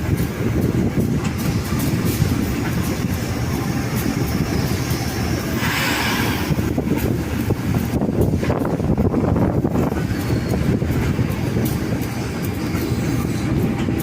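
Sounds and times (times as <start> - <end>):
train rumbling: 0.0 - 14.0
short hiss: 5.6 - 6.7.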